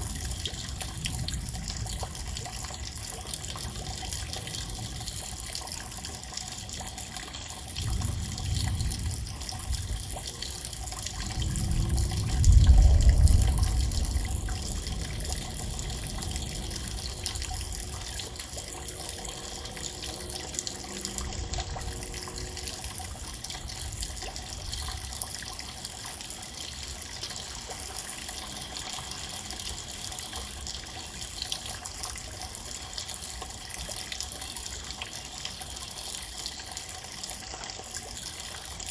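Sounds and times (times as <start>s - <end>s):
steady rain: 0.0s - 38.9s
low rumbles: 7.8s - 25.1s.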